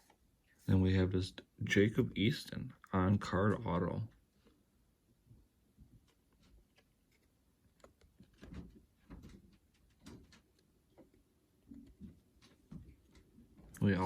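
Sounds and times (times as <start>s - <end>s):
soft taps and rustles: 5.8s - 13.8s.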